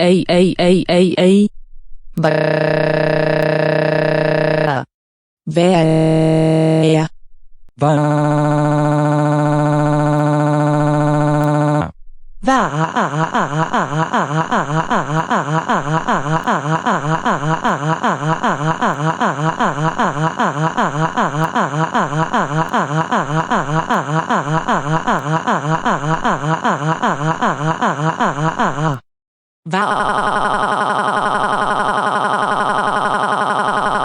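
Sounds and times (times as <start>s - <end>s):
synthetic voice sobbing: 12.4s - 29.0s.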